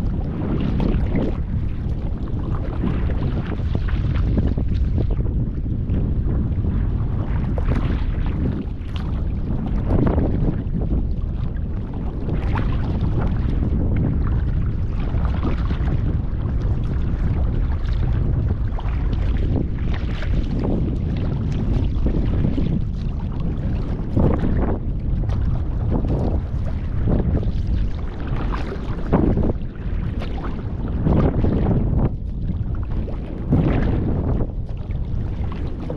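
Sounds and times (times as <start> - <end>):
wind rumble on microphone: 0.0 - 35.9
paddle strokes splashing: 11.4 - 35.9.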